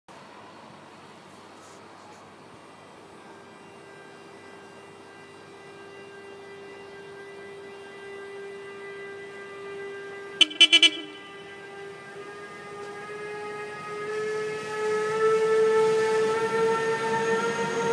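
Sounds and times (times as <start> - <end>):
locomotive whine: 0.2 - 17.9
loud horn tone blasts: 4.7 - 12.8.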